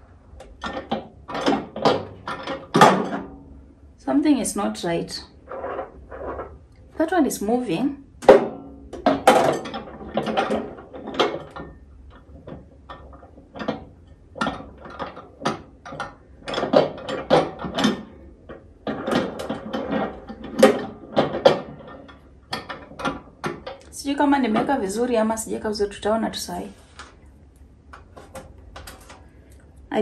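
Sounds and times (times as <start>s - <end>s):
microwave parts clicking and knocking: 0.3s - 3.4s, 8.2s - 23.9s, 27.9s - 29.6s.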